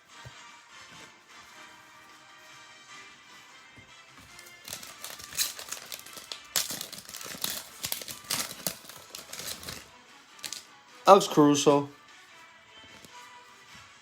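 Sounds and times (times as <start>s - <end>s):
plastic packaging crinkling: 4.3s - 10.6s.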